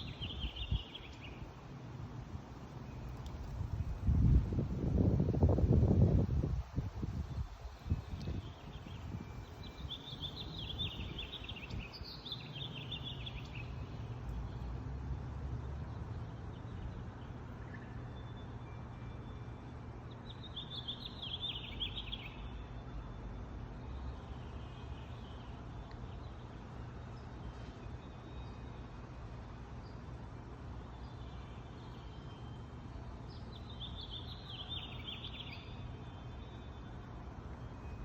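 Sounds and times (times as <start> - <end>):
songbird trilling: 8.3 - 13.8.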